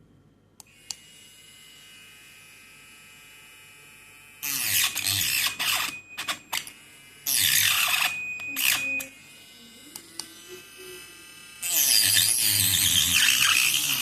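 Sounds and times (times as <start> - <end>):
grinder cutting: 4.4 - 14.0
grinder whining: 4.4 - 14.0.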